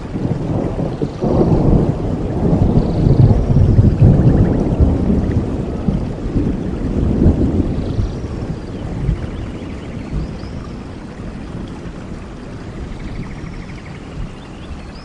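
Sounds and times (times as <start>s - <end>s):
thunder rolling: 0.0s - 12.0s
steady rain: 0.0s - 15.0s.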